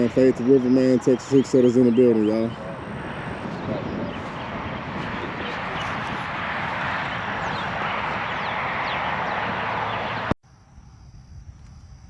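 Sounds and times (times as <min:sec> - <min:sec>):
loud steady rushing noise: 0:00.0 - 0:10.4
thin high insect drone: 0:10.5 - 0:12.0.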